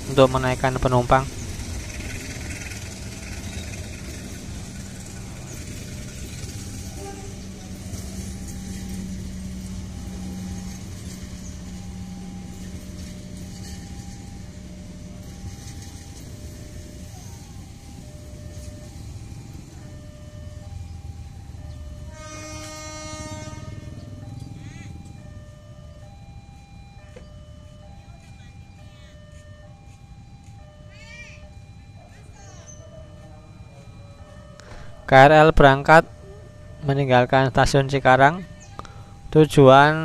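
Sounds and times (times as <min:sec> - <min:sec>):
train coaches rumbling on rails: 0:00.0 - 0:40.0
two-tone signal: 0:06.7 - 0:40.0
train horn: 0:06.8 - 0:14.3, 0:22.0 - 0:24.9.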